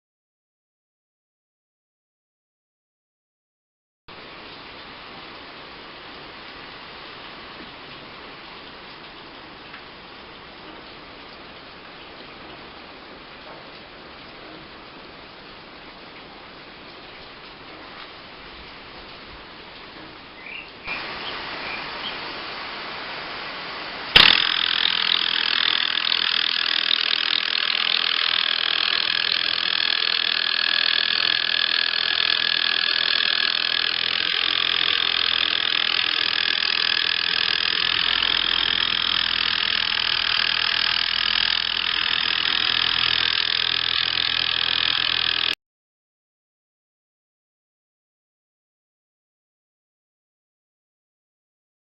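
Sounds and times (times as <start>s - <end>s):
compressed-air motor running: 20.9s - 45.6s
high whine: 24.0s - 45.6s
sharp click: 24.2s - 25.7s.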